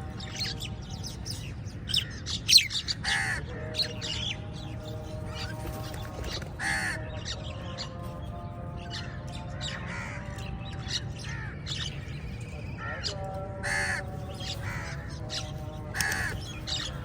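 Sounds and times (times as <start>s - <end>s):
birds chirping: 0.0s - 17.0s
crows cawing: 3.0s - 3.9s, 6.6s - 7.2s, 9.0s - 10.5s, 11.2s - 11.8s, 12.8s - 17.0s.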